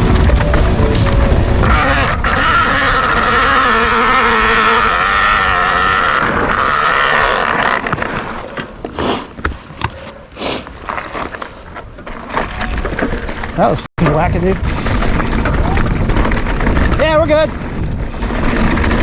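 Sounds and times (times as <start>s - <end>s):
mudguard rubbing spinning tyre: 1.5s - 8.6s
bike knocks and clatters: 12.0s - 19.0s.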